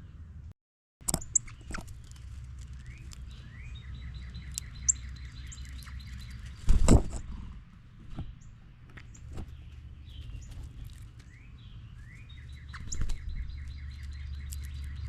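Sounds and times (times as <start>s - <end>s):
songbird whistling: 2.8s - 6.5s, 11.3s - 15.0s.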